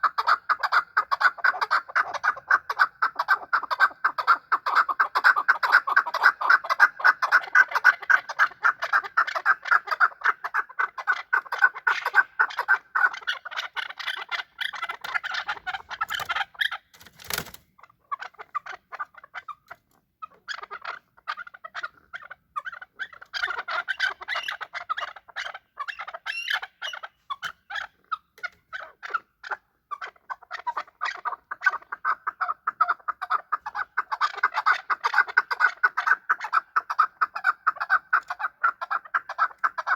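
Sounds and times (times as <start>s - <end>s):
partridge clucking: 7.3s - 29.2s.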